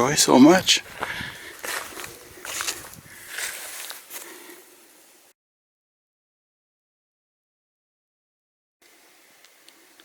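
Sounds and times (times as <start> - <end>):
footsteps on railway track bed: 0.6 - 4.3.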